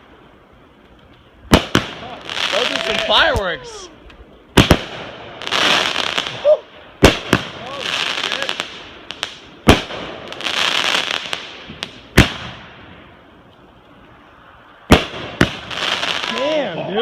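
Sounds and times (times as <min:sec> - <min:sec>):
crackling firework fizz: 0:00.0 - 0:17.0
firework bangs: 0:01.5 - 0:03.6, 0:04.5 - 0:13.2, 0:14.8 - 0:17.0.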